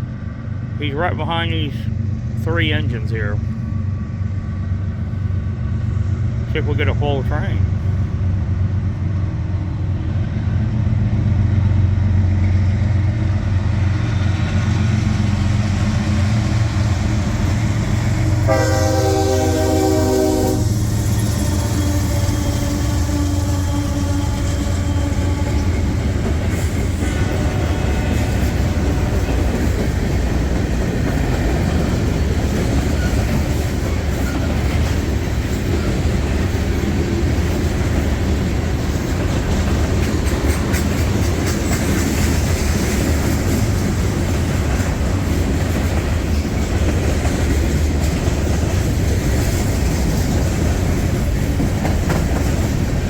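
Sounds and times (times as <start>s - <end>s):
freight train rumbling past: 0.0s - 53.0s
locomotive horn: 18.2s - 26.0s
wheels clacking over rail joints: 23.5s - 53.0s.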